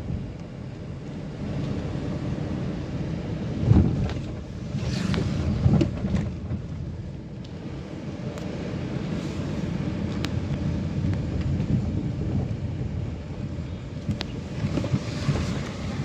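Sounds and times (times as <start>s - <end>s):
vehicle engine and tyres rumbling: 0.0s - 16.0s
wind buffeting microphone: 3.4s - 7.1s, 10.0s - 16.0s.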